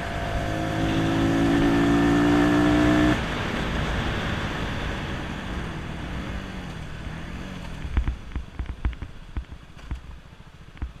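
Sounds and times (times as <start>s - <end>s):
motorcycle engine easing off: 0.0s - 8.1s
road and wind hiss: 0.0s - 11.0s.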